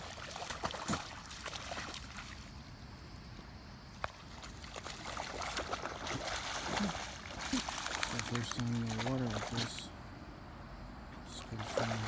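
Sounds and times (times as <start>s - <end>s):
dog splashing in a puddle: 0.0s - 2.5s, 4.1s - 9.9s, 11.5s - 12.0s.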